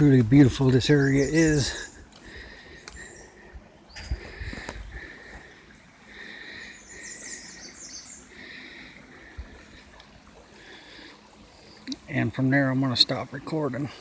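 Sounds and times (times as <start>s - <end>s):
descending bird phrase: 0.8s - 2.0s.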